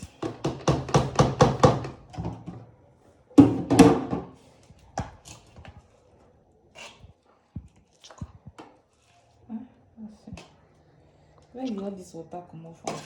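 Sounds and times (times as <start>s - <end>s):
utensil knocking on cookware: 0.2s - 2.4s.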